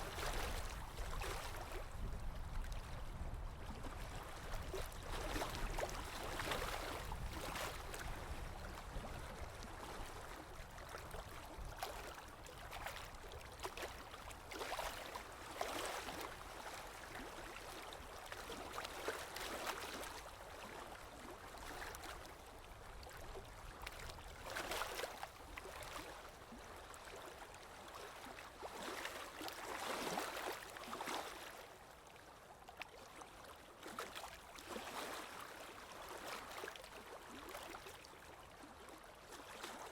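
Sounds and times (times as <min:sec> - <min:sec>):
water flowing and splashing: 0:00.0 - 0:01.8.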